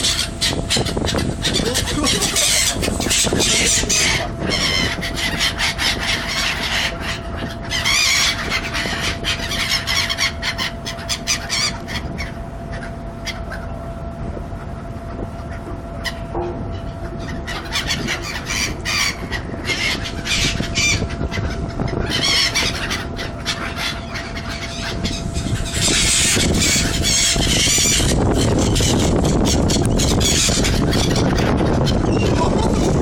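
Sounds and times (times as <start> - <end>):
seagulls calling: 0.0 - 33.0.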